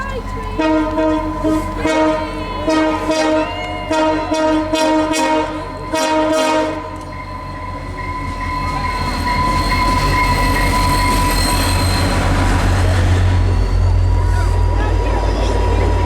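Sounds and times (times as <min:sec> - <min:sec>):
train wheels rumbling on rail: 0:00.0 - 0:16.0
locomotive air horn chord: 0:00.6 - 0:07.1.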